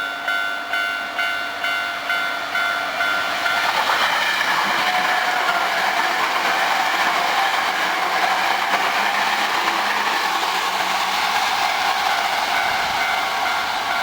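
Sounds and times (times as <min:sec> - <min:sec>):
train wheels rolling on rail: 0:00.0 - 0:14.0.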